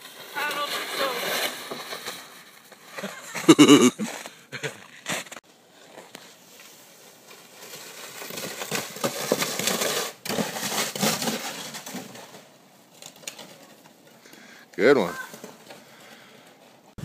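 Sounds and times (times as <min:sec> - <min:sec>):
crunching and scraping on snow: 0:00.0 - 0:13.0.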